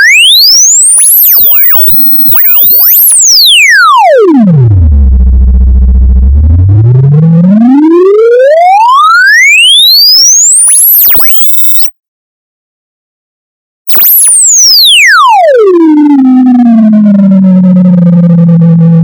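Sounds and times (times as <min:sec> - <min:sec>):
electronic sine-wave sweep: 0:00.0 - 0:11.9, 0:13.9 - 0:19.0.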